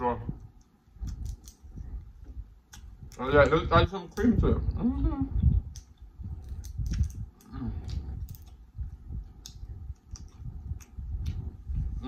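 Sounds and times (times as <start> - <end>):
chewing with wet mouth clicks: 2.7 - 4.3, 5.4 - 11.5.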